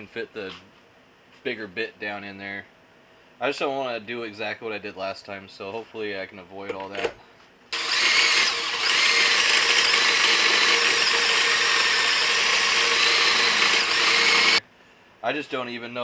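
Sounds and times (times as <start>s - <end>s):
power drill boring through steel: 7.8s - 14.6s.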